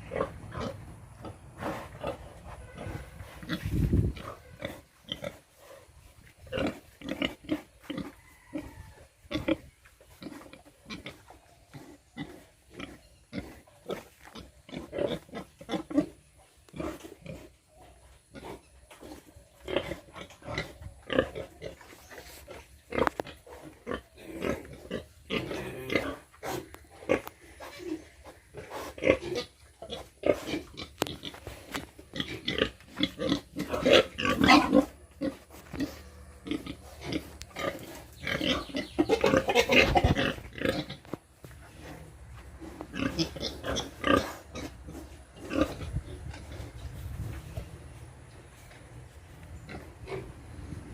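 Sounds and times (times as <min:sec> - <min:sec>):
pigs grunting: 0:22.4 - 0:41.1, 0:41.7 - 0:46.8
pigs calling loudly: 0:32.1 - 0:41.0, 0:42.8 - 0:46.7.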